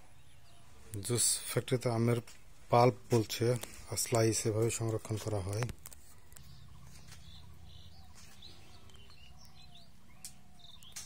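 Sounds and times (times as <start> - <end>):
faint bird chirps: 5.9 - 11.0.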